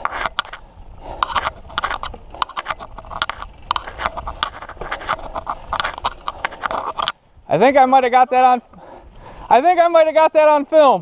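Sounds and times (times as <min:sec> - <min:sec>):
tyres rumbling on dirt: 0:00.0 - 0:07.8
mountain bike rattling: 0:00.0 - 0:08.1.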